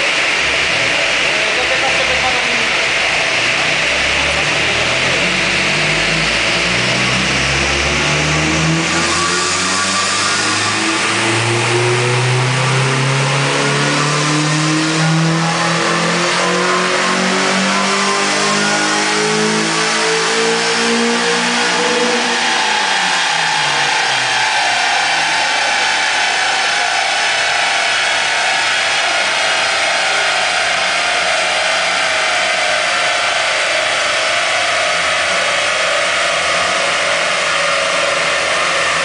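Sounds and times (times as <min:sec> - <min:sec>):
car engine revving under load: 0:02.0 - 0:39.0
steady rushing noise: 0:19.6 - 0:39.0.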